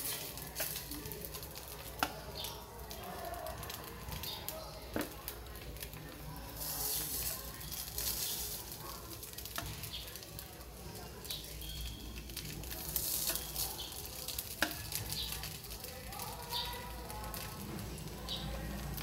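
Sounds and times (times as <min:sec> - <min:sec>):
radish cake sizzling in pan: 0:00.0 - 0:19.0.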